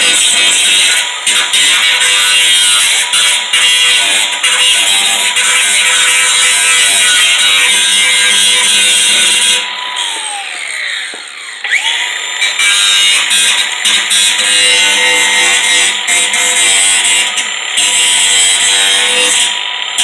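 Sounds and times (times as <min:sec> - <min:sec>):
electric power tool whining: 0:00.0 - 0:20.0.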